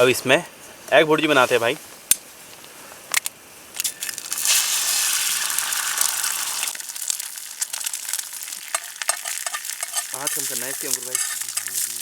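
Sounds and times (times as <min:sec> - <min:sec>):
crackles: 0:02.1 - 0:12.0
food sizzling in a pan: 0:04.0 - 0:12.0.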